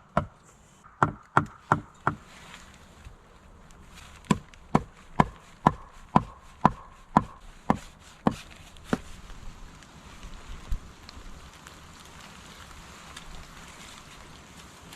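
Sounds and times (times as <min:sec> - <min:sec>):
tool striking wood: 0:00.0 - 0:02.2, 0:04.2 - 0:09.1.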